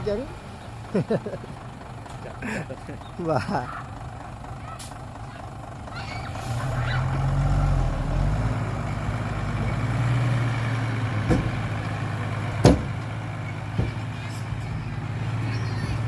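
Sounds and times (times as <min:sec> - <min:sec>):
diesel engine running: 0:00.0 - 0:16.0
sharp knocks: 0:11.2 - 0:11.6, 0:12.6 - 0:13.1.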